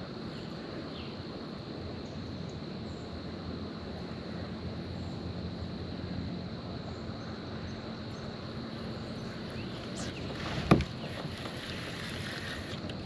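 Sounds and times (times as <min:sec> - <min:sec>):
water around kayak: 0:00.0 - 0:13.0
wind: 0:00.0 - 0:13.0.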